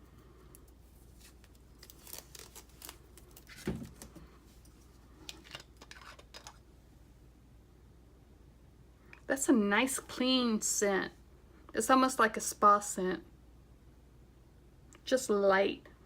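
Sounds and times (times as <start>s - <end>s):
plastic packaging rustling: 0.6s - 6.6s.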